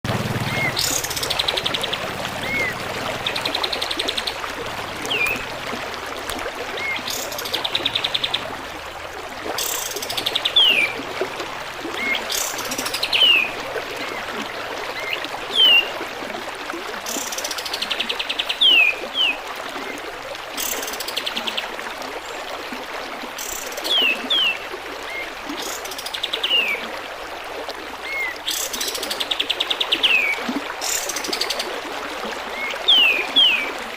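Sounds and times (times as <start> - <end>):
trickling water: 0.0 - 33.9
bird song with trills and whistles: 0.4 - 4.4, 5.0 - 5.5, 9.6 - 11.0, 12.0 - 14.2, 15.0 - 15.9, 17.1 - 19.4, 32.5 - 33.8.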